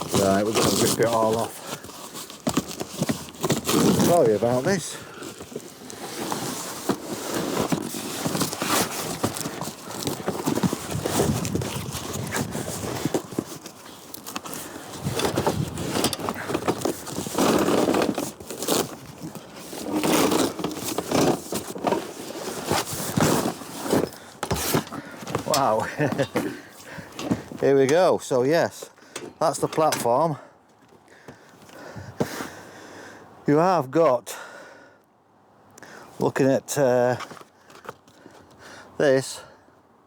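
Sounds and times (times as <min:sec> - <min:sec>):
trolley clicks and knocks: 0:15.1 - 0:18.4, 0:23.2 - 0:28.1, 0:29.1 - 0:30.2.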